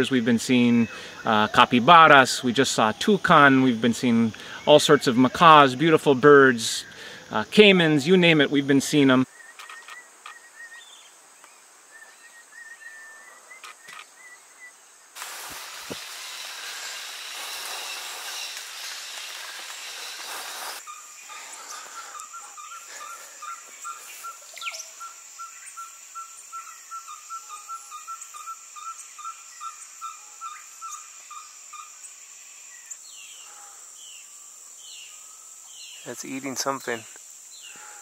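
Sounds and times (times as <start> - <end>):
high insect drone: 0.0 - 38.0
faint bird chirps: 9.2 - 14.8, 16.7 - 32.0
rushing hiss: 15.2 - 24.7.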